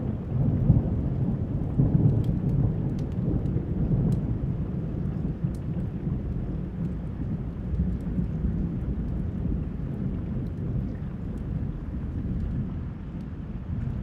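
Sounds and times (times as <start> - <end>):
thunder rumbling: 0.0 - 12.8
steady rain: 0.0 - 14.0.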